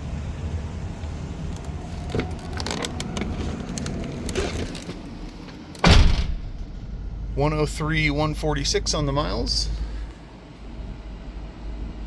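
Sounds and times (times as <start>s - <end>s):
low steady hum: 0.0s - 12.0s
loud short thump: 5.8s - 6.9s.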